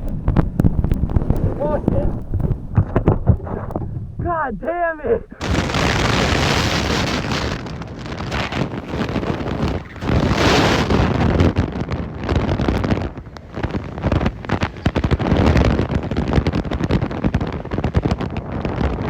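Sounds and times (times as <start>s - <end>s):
sled scraping and rattling on snow: 0.0s - 4.0s, 5.4s - 11.8s
wind buffeting microphone: 0.0s - 19.0s.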